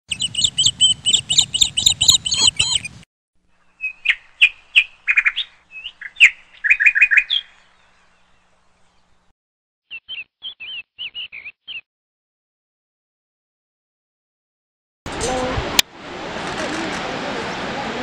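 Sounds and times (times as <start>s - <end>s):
bird trills: 0.1s - 8.4s, 9.9s - 11.8s
small birds chirping: 0.1s - 9.3s, 9.9s - 11.8s.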